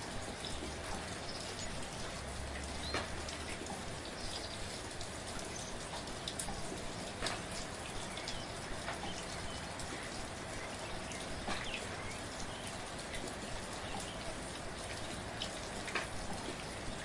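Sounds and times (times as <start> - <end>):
raindrops ticking close by: 0.0 - 17.0
soft rain falling: 0.0 - 17.0.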